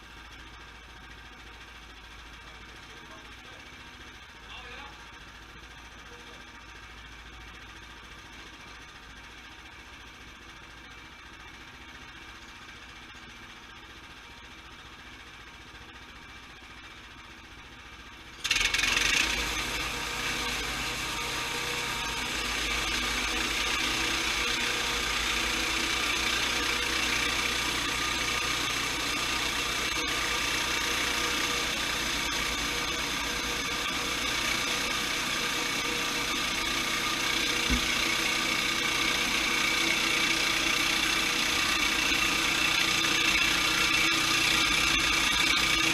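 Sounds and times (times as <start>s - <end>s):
sawmill engine running: 0.0s - 45.9s
harsh mechanical din: 22.0s - 45.9s.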